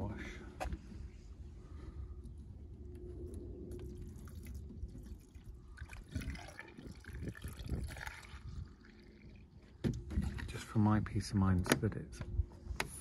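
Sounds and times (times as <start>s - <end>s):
liquid pouring from bottle: 3.7s - 9.6s.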